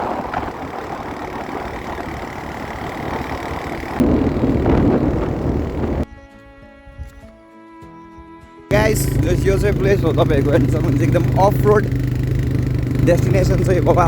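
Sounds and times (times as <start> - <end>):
vehicle engine rumbling: 0.0 - 6.1, 8.7 - 14.0
wind noise: 0.0 - 7.3
background music with held notes: 6.1 - 8.7.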